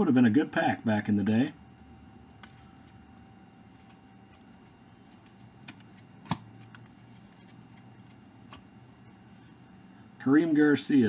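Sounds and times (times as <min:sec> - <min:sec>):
cards rustling and clicking: 0:02.4 - 0:03.0, 0:03.7 - 0:08.7
card snapping: 0:05.6 - 0:07.4.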